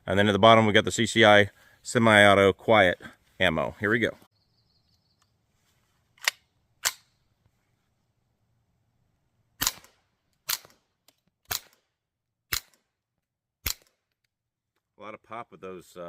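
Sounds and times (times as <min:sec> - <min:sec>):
suppressed rifle shots: 0:09.6 - 0:10.8, 0:11.5 - 0:11.9, 0:13.6 - 0:14.0.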